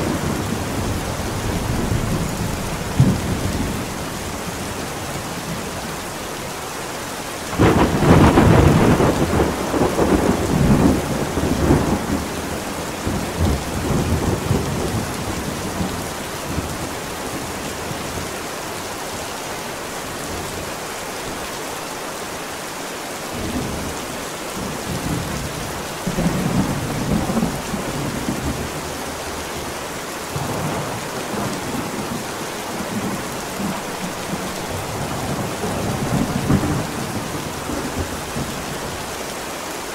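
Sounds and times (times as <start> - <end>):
heavy rain: 0.0 - 39.9
thunder rumbling: 7.5 - 16.9, 30.3 - 39.0.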